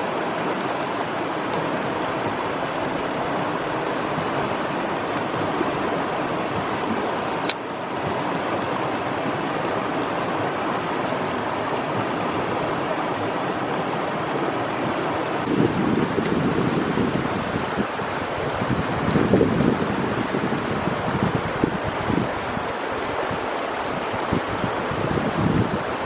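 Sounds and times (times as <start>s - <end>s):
stream water rushing: 0.0s - 26.0s
sharp click: 7.4s - 7.6s.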